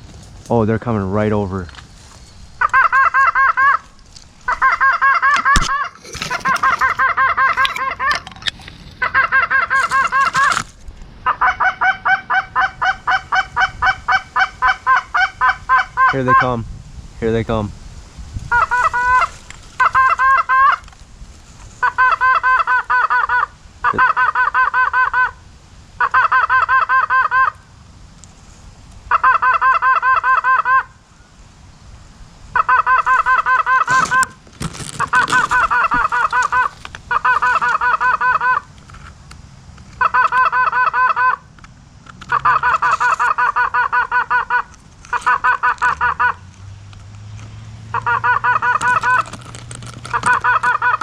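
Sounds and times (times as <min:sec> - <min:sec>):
goose call honks and clucks: 0:02.6 - 0:03.9, 0:04.5 - 0:10.6, 0:11.2 - 0:16.6, 0:18.5 - 0:20.9, 0:21.8 - 0:25.4, 0:26.0 - 0:27.6, 0:29.1 - 0:31.0, 0:32.5 - 0:38.8, 0:40.0 - 0:41.5, 0:42.2 - 0:46.6, 0:47.8 - 0:51.0.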